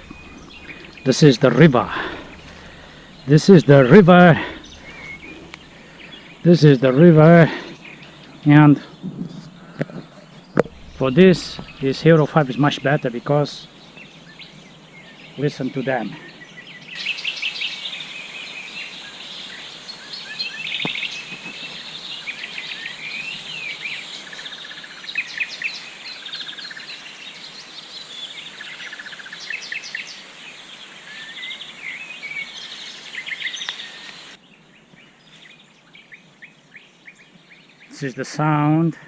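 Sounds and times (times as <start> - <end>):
songbirds singing: 0.0 - 39.0
steady background hiss: 0.0 - 39.0.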